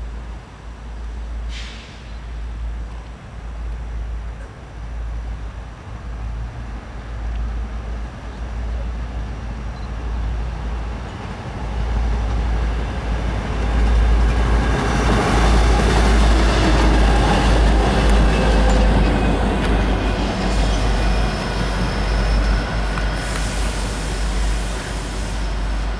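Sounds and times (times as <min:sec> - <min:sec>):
train rumbling on rails: 0:00.1 - 0:25.9.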